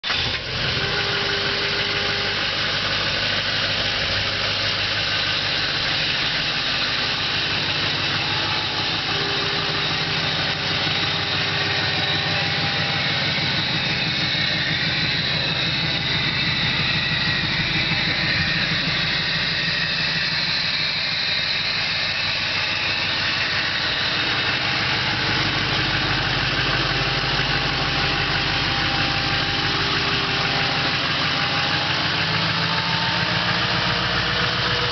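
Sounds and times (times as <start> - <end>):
truck engine idling: 0.0 - 34.9.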